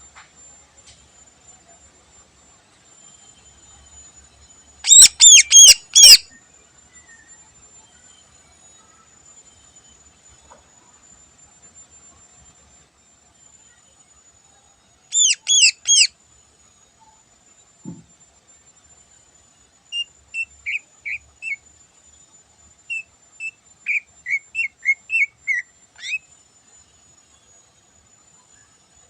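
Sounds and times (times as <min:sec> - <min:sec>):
bird singing whistled notes and chirps: 0:04.8 - 0:07.5, 0:15.1 - 0:16.1, 0:19.9 - 0:21.6, 0:22.9 - 0:26.3.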